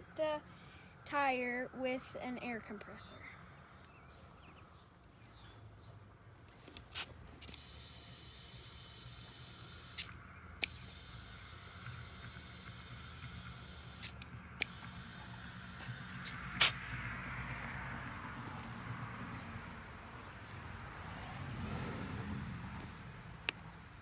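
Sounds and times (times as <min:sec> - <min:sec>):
sharp clicks: 0:06.7 - 0:16.8, 0:22.8 - 0:23.9
compressed air hissing into tire: 0:06.8 - 0:16.8.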